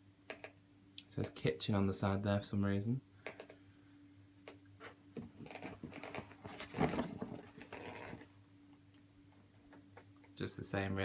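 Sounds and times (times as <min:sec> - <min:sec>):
cardboard box scraping: 0:06.2 - 0:08.2
cardboard box taps and scuffs: 0:06.4 - 0:07.5.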